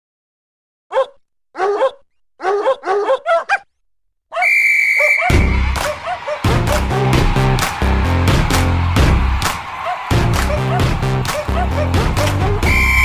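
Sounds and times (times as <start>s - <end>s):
puppy yipping and barking: 0.9s - 3.7s
sports whistle: 4.4s - 6.4s, 12.6s - 13.0s
music with heavy beat: 5.3s - 13.0s.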